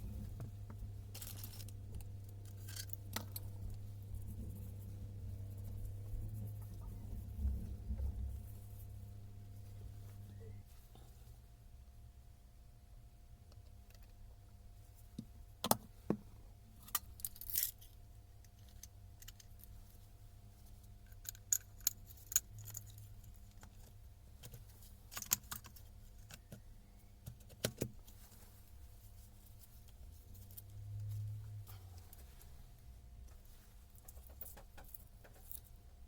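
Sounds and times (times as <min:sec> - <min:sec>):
low hum: 0:00.0 - 0:12.7
small parts and tools clinking: 0:01.1 - 0:03.5, 0:16.8 - 0:19.8, 0:21.0 - 0:26.6.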